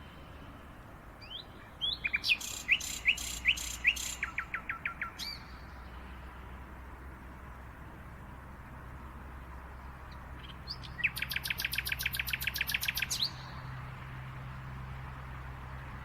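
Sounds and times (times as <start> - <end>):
songbird chirping and trilling: 1.2 - 6.4, 9.8 - 13.9.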